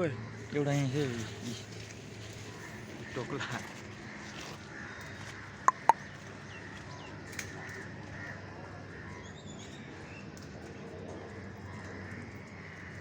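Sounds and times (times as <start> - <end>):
outdoor background noise: 0.0 - 13.0
sharp clicks: 5.7 - 6.0
bird chirps: 5.7 - 6.1.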